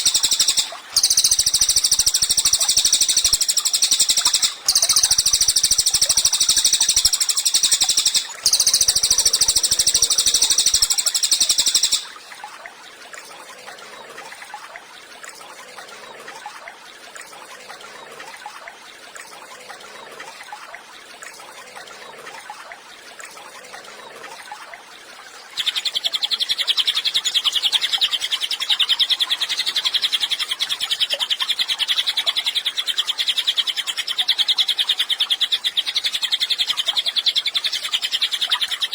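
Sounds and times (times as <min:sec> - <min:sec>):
songbird trilling: 0:00.0 - 0:12.2, 0:25.6 - 0:38.9.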